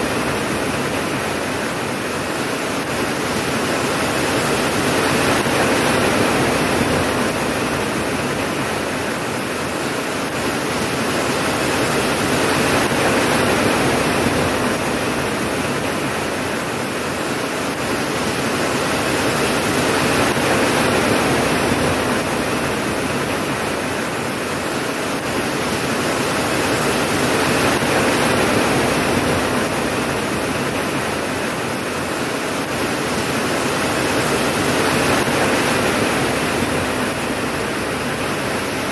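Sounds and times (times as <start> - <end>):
heavy rainfall: 0.0 - 38.9.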